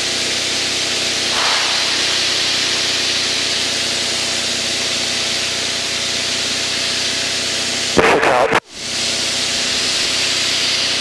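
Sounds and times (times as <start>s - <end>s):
light aircraft engine droning: 0.0s - 11.0s
rush of airflow: 1.3s - 5.3s.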